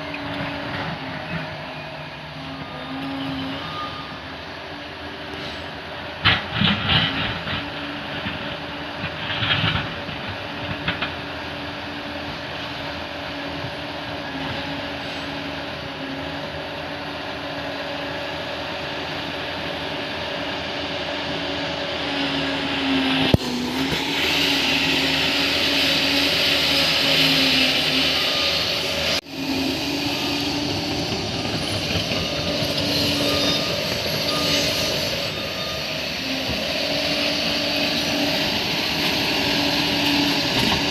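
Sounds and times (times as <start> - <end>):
bulldozer diesel engine: 0.0 - 40.9
tracks clattering and grinding: 5.4 - 12.9, 30.2 - 40.9.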